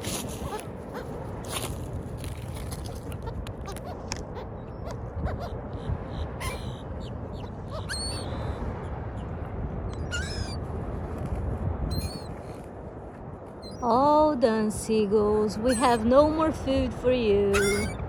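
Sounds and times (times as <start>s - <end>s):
seagulls calling: 0.0s - 1.7s, 2.6s - 9.3s, 9.9s - 10.6s, 11.9s - 12.3s, 13.6s - 14.0s, 15.6s - 16.3s, 17.5s - 18.0s
low background noise: 12.6s - 18.0s.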